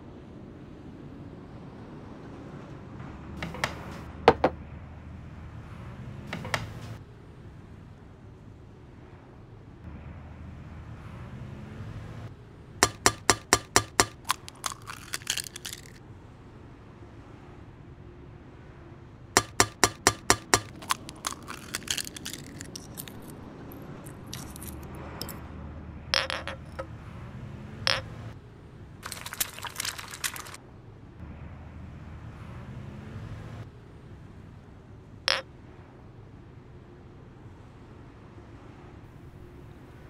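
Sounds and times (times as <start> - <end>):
glass clinks and scrapes: 20.5 - 23.4, 24.0 - 25.4, 26.2 - 26.9, 27.9 - 28.1.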